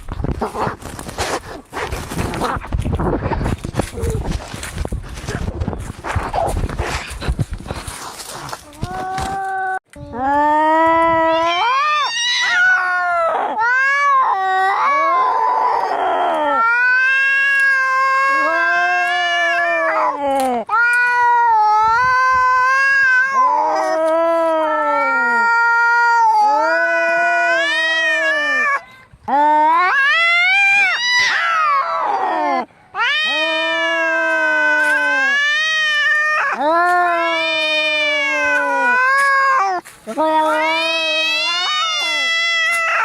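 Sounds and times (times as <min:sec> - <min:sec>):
cats yowling: 0:11.1 - 0:28.8, 0:29.4 - 0:43.0.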